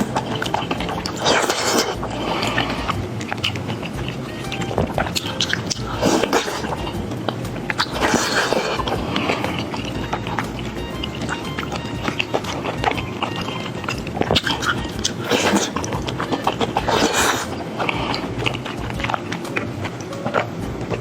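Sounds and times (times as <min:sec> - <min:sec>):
noodle slurping: 0:00.0 - 0:21.0
wet chewing with mouth clicks: 0:00.0 - 0:21.0.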